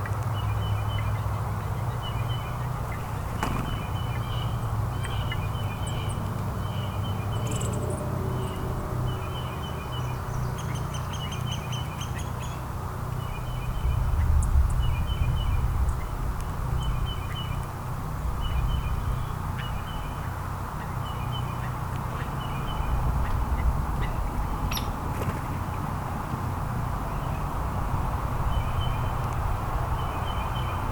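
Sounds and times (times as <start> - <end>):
small songbirds chirping: 0.0 - 30.9.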